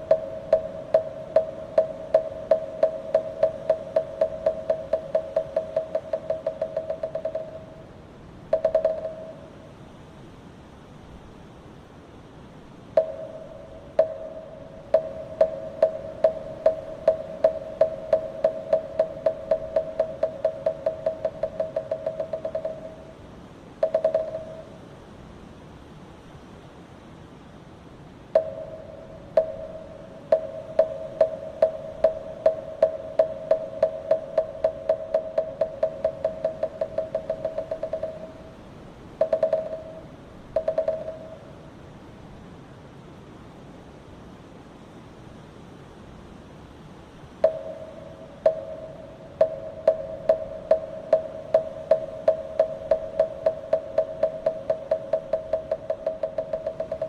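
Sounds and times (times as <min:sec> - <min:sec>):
wooden fish drum knocks: 0:39.2 - 0:40.0.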